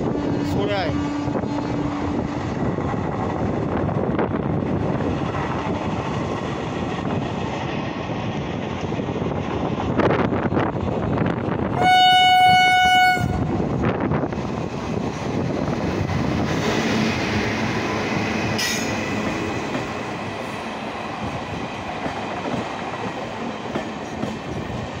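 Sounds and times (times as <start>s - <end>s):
train wheels rumbling on rails: 0.0s - 25.0s
locomotive horn blast: 11.8s - 13.5s.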